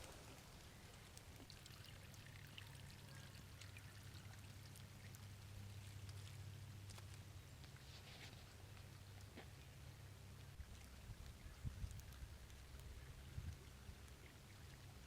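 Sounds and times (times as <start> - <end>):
stream trickling: 0.0 - 8.0, 8.8 - 15.0
faint low hum: 0.0 - 15.0
tiny ticks: 10.3 - 15.0.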